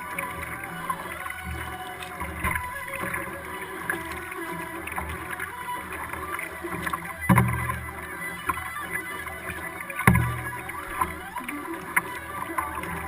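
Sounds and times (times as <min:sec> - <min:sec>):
small splashes and drips: 0:00.0 - 0:13.0
water noise from paddling: 0:00.0 - 0:13.0
sharp knock on hull: 0:06.8 - 0:07.7.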